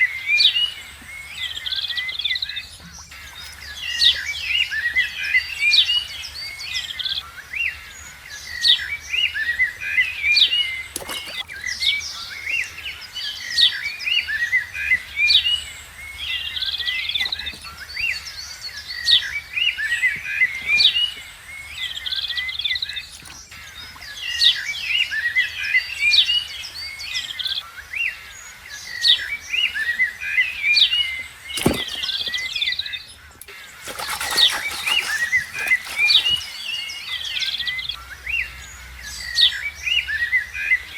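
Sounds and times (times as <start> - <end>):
small birds chirping: 10.0 - 14.3, 26.4 - 38.0.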